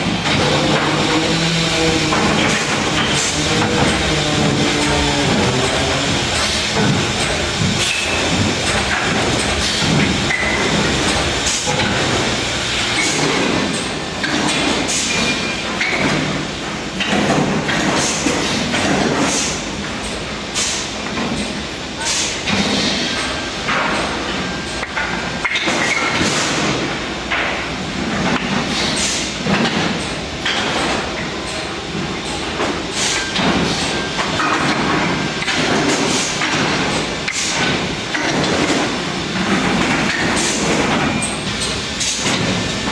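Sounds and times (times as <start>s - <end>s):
mechanical clatter with clicks: 17.0s - 42.9s.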